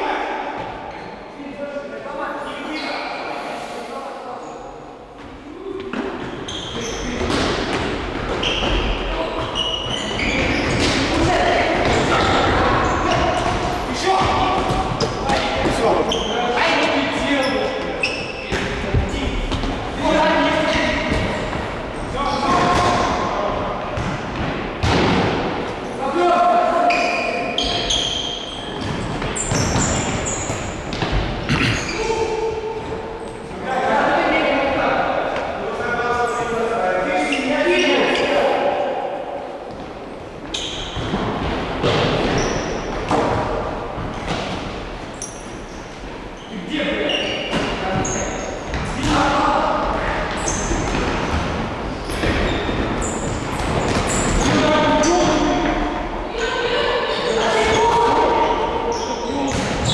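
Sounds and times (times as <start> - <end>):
shoes squeaking on court: 6.0 - 23.2, 26.9 - 33.5, 39.7 - 56.0.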